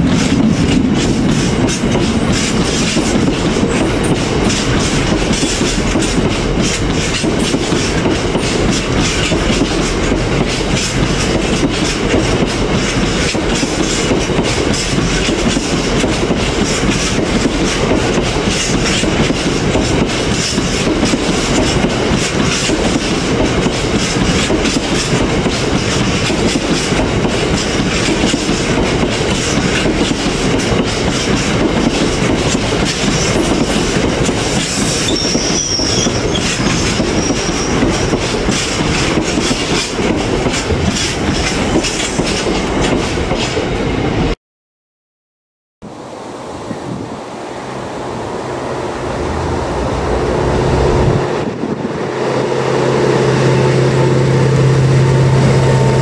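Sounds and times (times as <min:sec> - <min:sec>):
train wheels clattering on rails: 0:00.0 - 0:44.4.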